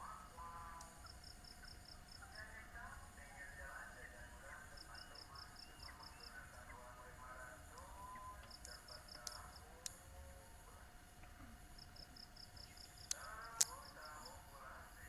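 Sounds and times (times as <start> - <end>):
small birds chirping: 0.0 - 10.5, 11.1 - 14.9
sharp ticks: 7.8 - 10.0, 11.8 - 14.3.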